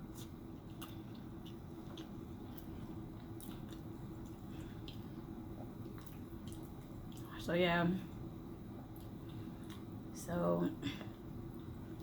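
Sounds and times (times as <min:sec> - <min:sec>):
quiet chewing: 0:00.0 - 0:07.4, 0:08.1 - 0:10.0
faint steady hum: 0:00.0 - 0:12.0.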